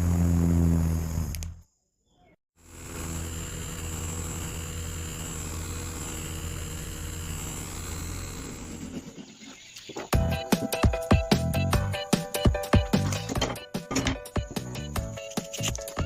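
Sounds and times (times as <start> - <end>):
motor running with high whine: 2.6 - 9.4.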